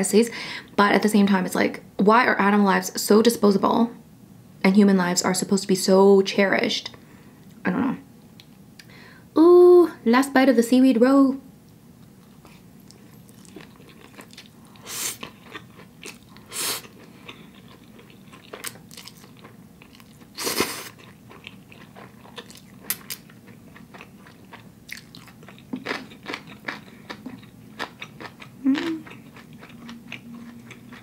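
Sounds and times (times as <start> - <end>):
wet chewing and mouth smacks: 12.0 - 31.0
closed-mouth hum: 28.4 - 31.0.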